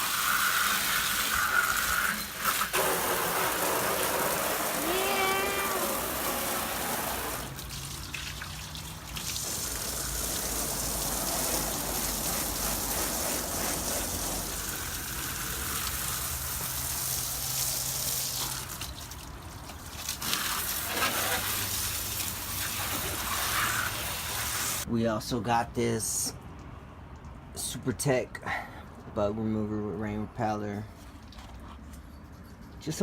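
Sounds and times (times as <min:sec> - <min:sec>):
water spraying hissing: 0:00.0 - 0:19.2, 0:20.0 - 0:24.9.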